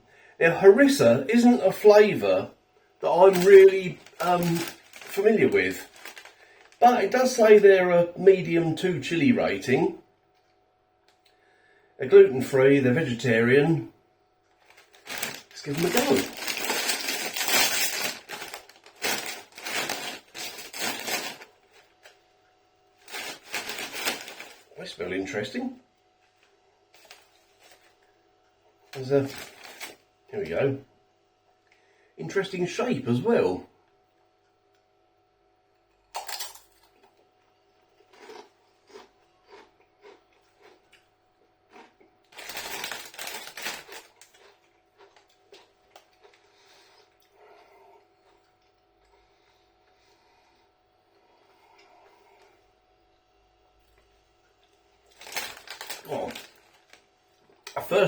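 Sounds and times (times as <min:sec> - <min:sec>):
plastic snack bag crinkling: 0:03.0 - 0:07.6, 0:14.5 - 0:22.2, 0:23.0 - 0:25.6, 0:26.9 - 0:28.0, 0:28.9 - 0:30.1, 0:36.2 - 0:37.0, 0:38.0 - 0:41.0, 0:41.7 - 0:47.0, 0:54.7 - 0:58.0
chips being crunched and chewed: 0:03.1 - 0:07.1, 0:14.6 - 0:21.6, 0:23.0 - 0:24.7, 0:28.9 - 0:30.0, 0:36.1 - 0:37.2, 0:37.9 - 0:41.1, 0:41.7 - 0:47.2, 0:55.1 - 0:57.0.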